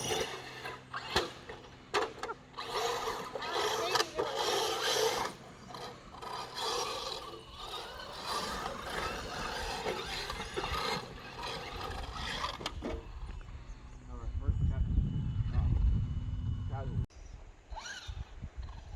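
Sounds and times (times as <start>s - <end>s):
tyres scrabbling through dirt: 0.0s - 13.6s
rc truck drivetrain whir: 0.0s - 18.9s.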